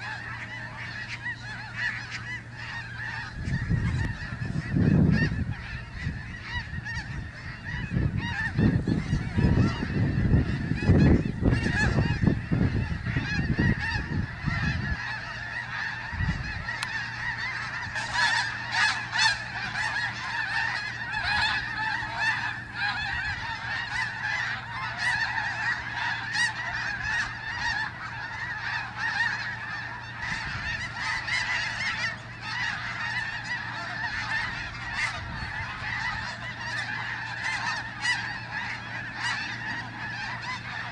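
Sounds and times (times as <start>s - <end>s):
geese honking: 0.0s - 40.9s.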